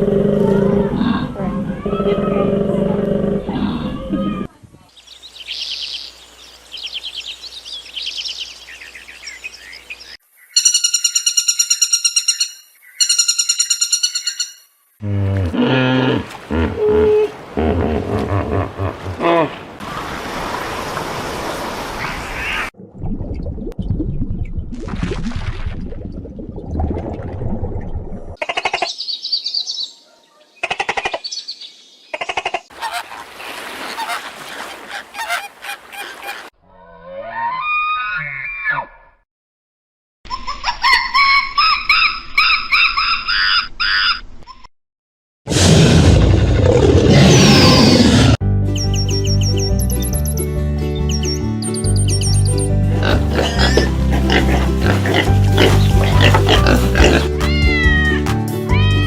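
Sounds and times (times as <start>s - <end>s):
small birds chirping: 4.8s - 14.9s, 28.8s - 32.2s, 51.1s - 57.3s
high-pitched bird trills: 10.4s - 14.7s
fowl pulsing calls: 32.3s - 36.5s.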